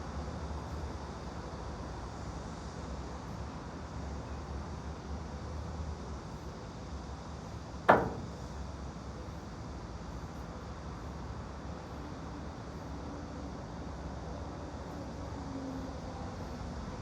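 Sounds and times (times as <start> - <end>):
room ambience rumble and hiss: 0.0 - 17.0
sharp knock: 7.9 - 8.6.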